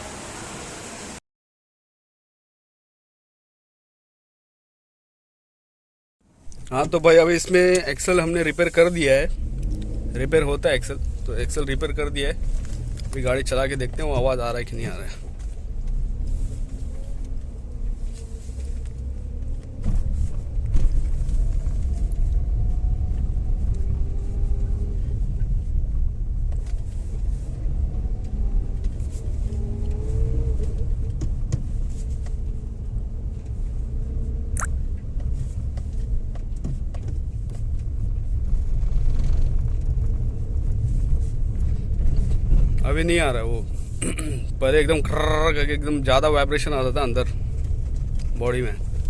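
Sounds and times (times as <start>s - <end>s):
car engine rumbling: 6.2s - 49.0s.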